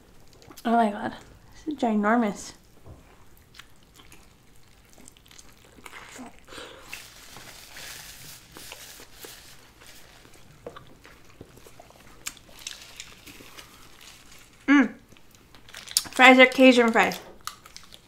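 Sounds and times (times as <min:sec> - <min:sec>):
biting and chewing burger: 0:03.3 - 0:07.4, 0:08.3 - 0:16.2, 0:17.2 - 0:18.0.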